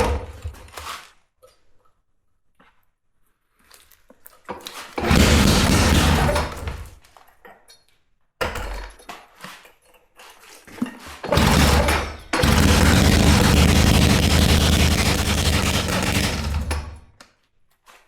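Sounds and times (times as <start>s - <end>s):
rock drill clattering: 5.0s - 6.9s, 11.2s - 17.1s.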